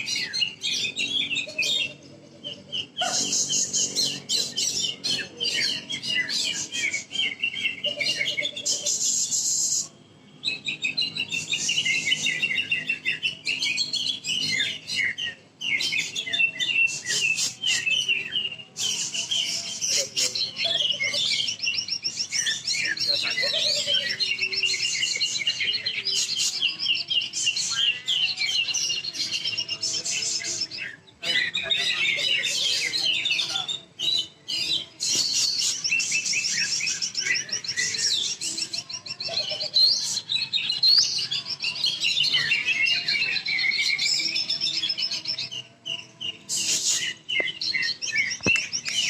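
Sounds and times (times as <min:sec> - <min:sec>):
bird singing rapid chirps and trills: 0:00.0 - 0:49.0.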